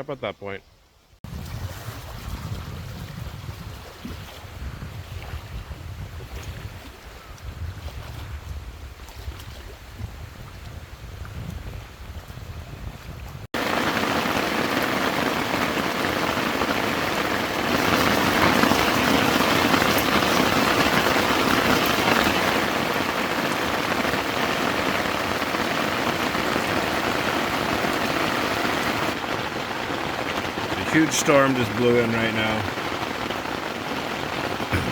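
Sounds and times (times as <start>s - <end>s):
low wind rumble: 1.3s - 31.8s
heavy rain pouring: 13.5s - 34.9s.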